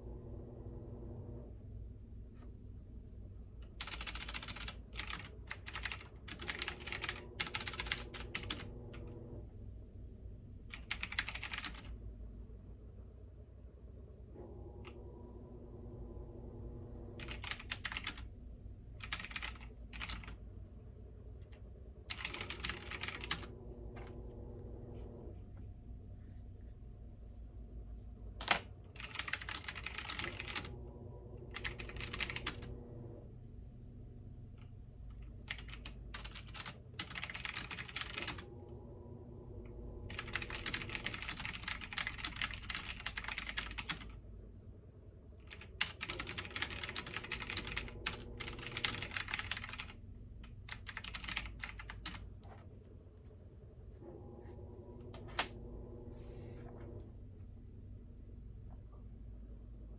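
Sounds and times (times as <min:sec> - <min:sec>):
washing machine humming: 0:00.0 - 0:59.9
typing on computer keyboard: 0:03.7 - 0:08.7, 0:10.7 - 0:12.0, 0:17.2 - 0:18.3, 0:19.0 - 0:20.4, 0:22.1 - 0:23.5, 0:28.4 - 0:30.7, 0:31.5 - 0:32.7, 0:35.4 - 0:38.4, 0:40.1 - 0:44.2, 0:45.5 - 0:50.0, 0:50.7 - 0:52.2.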